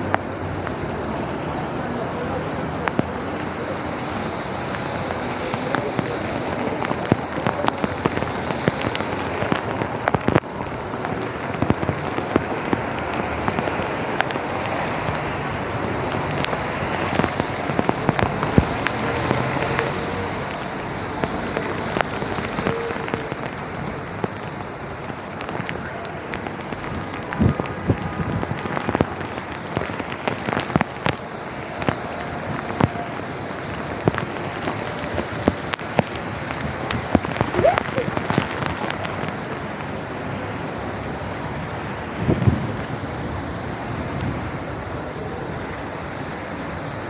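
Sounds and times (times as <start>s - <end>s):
rain on wet pavement: 0.0s - 47.0s
raindrops ticking close by: 0.0s - 47.0s.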